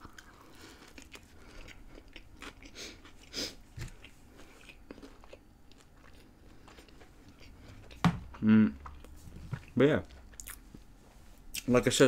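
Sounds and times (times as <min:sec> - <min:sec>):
chewing with soft crunching: 0:00.0 - 0:11.7.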